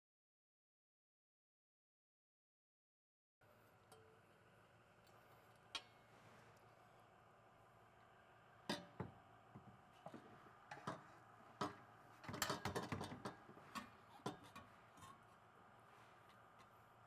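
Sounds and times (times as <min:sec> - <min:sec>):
sharp clicks and knocks: 0:08.7 - 0:15.2.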